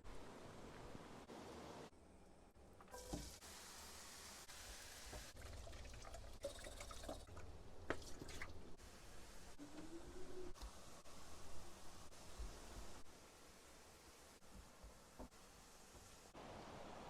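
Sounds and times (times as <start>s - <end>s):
liquid being poured: 5.4s - 8.7s.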